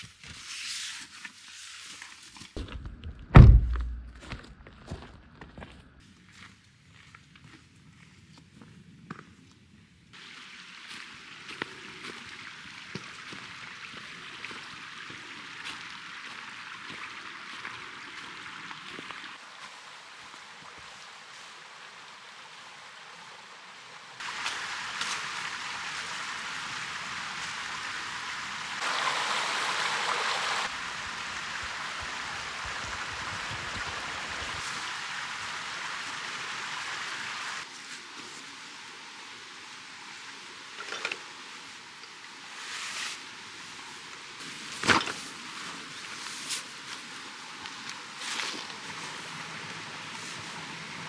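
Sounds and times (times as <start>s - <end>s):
running water rushing: 10.2s - 51.0s.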